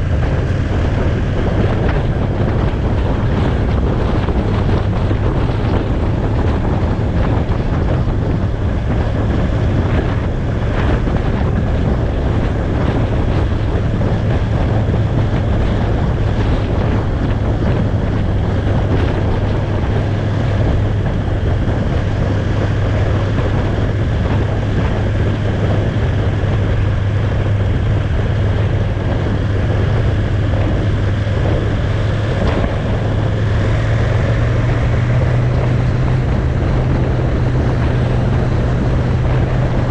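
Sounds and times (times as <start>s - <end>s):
motorcycle engine cruising: 0.0s - 39.9s
wind noise on microphone: 0.0s - 39.9s.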